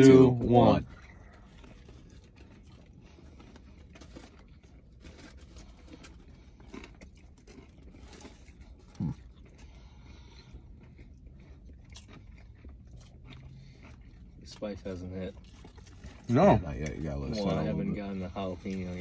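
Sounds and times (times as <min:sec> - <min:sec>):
quiet chewing: 0:00.6 - 0:19.0
car engine hum: 0:07.0 - 0:19.0.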